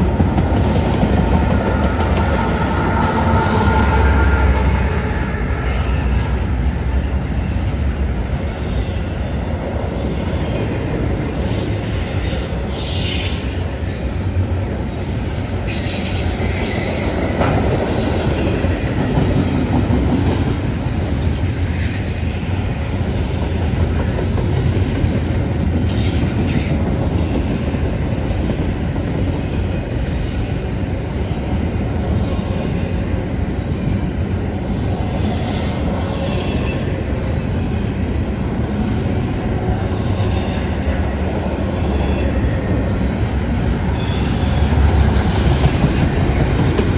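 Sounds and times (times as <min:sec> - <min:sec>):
train wheels rumbling on rails: 0:00.0 - 0:46.9
high-pitched wheel squeal: 0:02.3 - 0:06.4, 0:35.2 - 0:39.3.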